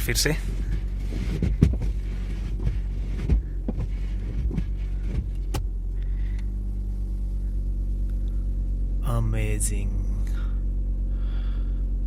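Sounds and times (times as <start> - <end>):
windscreen wipers knocking and scraping: 0.0 - 5.8
car engine idling: 0.0 - 12.0.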